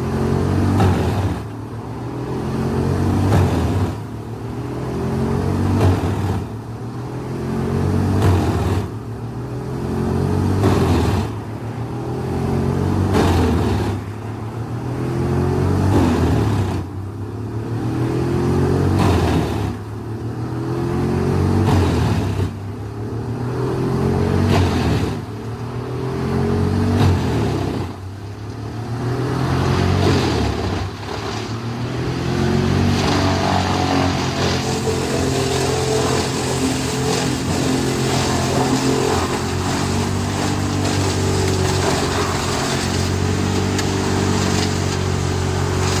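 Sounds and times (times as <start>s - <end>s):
wood chipper engine under load: 0.0s - 4.5s, 26.3s - 46.0s
wood cracking as chipped: 34.3s - 46.0s.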